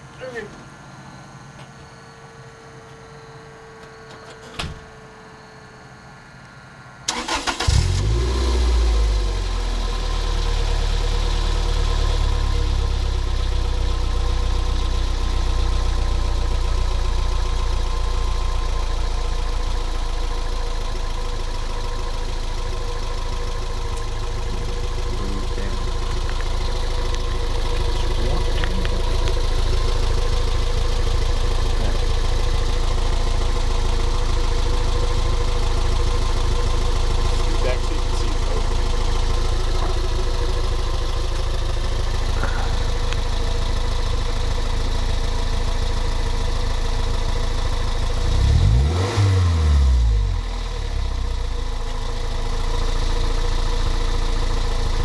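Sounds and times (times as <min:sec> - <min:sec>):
car engine idling: 0:04.9 - 0:55.0.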